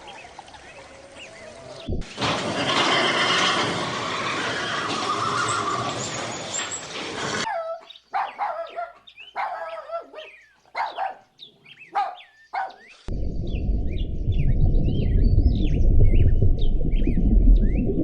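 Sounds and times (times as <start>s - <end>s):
dog barking: 7.5s - 12.9s
small birds chirping: 7.5s - 16.3s
loud low rumble: 13.1s - 18.0s.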